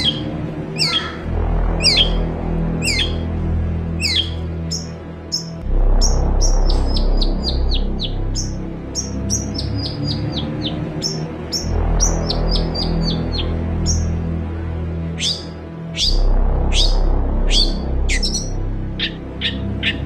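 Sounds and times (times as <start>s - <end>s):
background music: 0.0s - 20.0s
bird singing sharp falling chirps: 15.2s - 16.2s.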